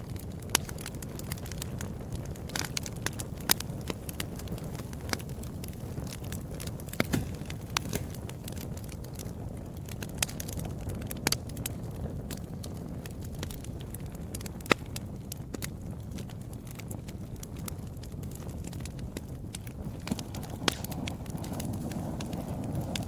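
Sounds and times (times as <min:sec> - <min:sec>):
fireplace crackling and popping: 0:00.0 - 0:23.0
low rumble of burning: 0:00.0 - 0:23.0.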